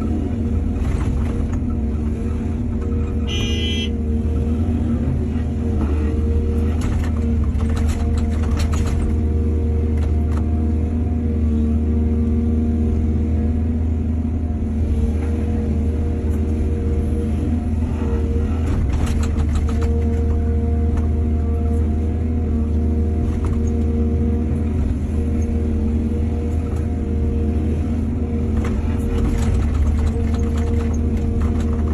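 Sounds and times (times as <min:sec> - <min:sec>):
excavator diesel engine running: 0:00.0 - 0:31.9
rattling and clanking: 0:06.8 - 0:09.2, 0:28.6 - 0:31.9.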